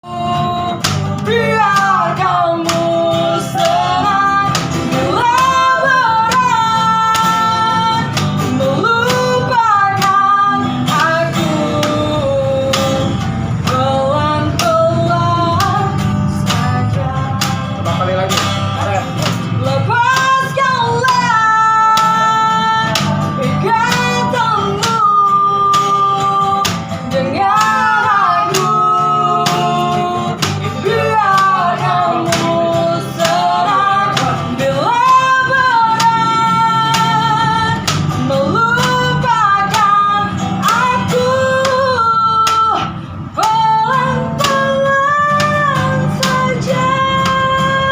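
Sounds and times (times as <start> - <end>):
guitar: 0.0 - 47.9
high-voiced person singing: 19.5 - 47.9.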